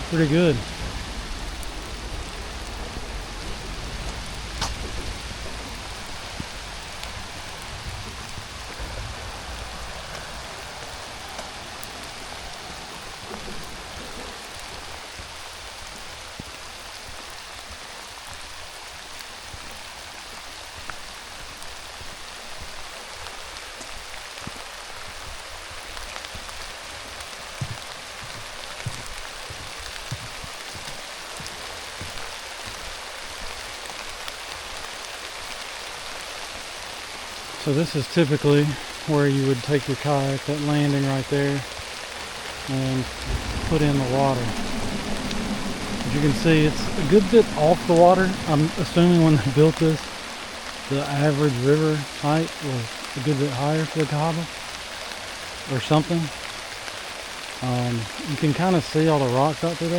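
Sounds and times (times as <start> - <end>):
low rumble: 0.0 - 20.4, 39.9 - 53.2
steady rain falling: 0.0 - 59.9.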